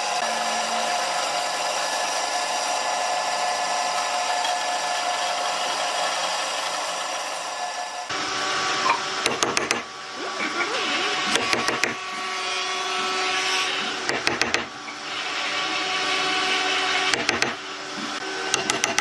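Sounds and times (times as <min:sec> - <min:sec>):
tool scraping wood: 0:08.9 - 0:09.9, 0:11.2 - 0:15.2, 0:16.4 - 0:19.0
sharp clicks: 0:09.2 - 0:09.9, 0:11.3 - 0:12.0, 0:14.1 - 0:14.7, 0:17.1 - 0:17.6.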